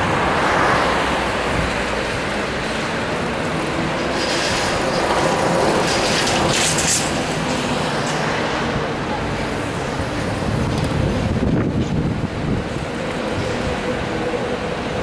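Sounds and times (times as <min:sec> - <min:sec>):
electric trolleybus approaching: 0:00.0 - 0:15.0
street traffic rumble: 0:00.0 - 0:15.0.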